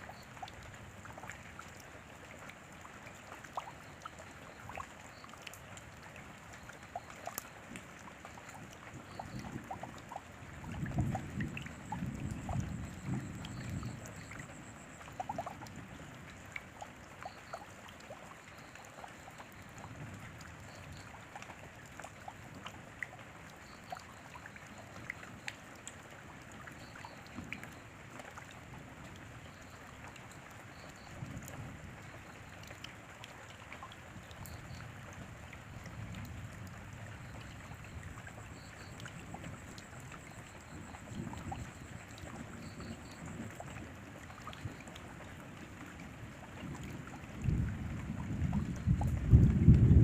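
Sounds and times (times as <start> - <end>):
rain falling: 0.0 - 50.0
raindrops ticking: 0.0 - 50.0.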